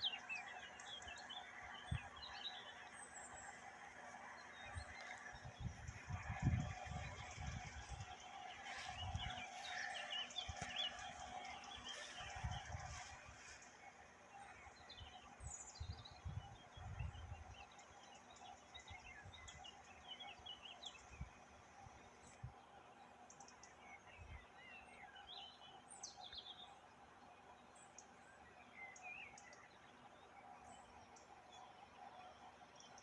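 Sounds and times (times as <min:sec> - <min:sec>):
small birds chirping: 0:00.0 - 0:21.3.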